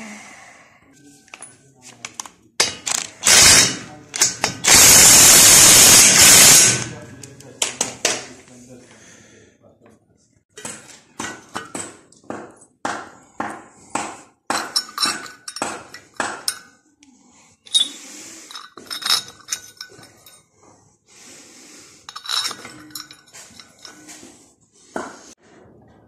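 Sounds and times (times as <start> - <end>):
metal tools clinking on engine parts: 14.6 - 16.8, 17.6 - 20.5, 22.0 - 24.4.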